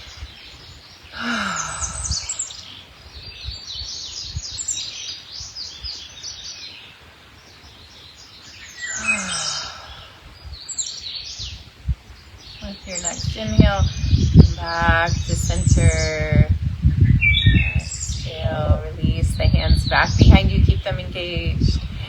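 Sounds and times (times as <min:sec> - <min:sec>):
songbirds chirping and trilling: 0:00.0 - 0:22.0
person sighing exhales: 0:01.2 - 0:02.6, 0:08.9 - 0:10.3.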